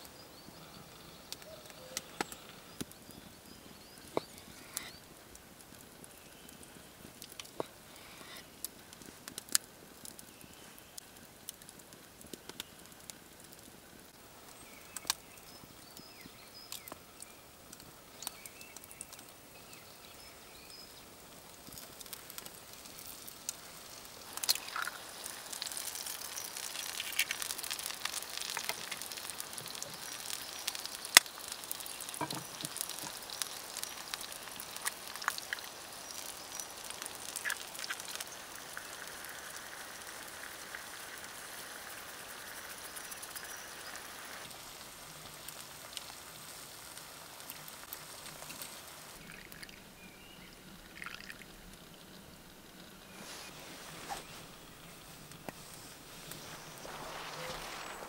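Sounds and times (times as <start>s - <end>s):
bacon and egg sizzling: 0.1s - 58.0s
egg cracking: 21.6s - 44.6s, 47.5s - 50.0s, 50.6s - 53.1s
coffee pouring into a cup: 49.2s - 49.9s, 50.8s - 51.6s.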